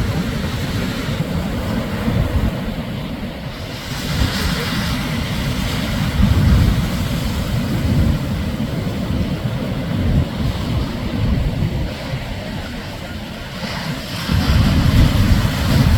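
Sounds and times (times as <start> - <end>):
waves breaking on sand: 0.0 - 15.9.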